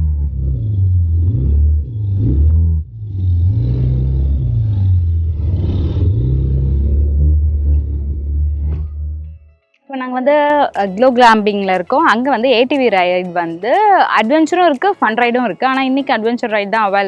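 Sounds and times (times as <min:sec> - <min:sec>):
atv engines revving: 0:00.0 - 0:08.9.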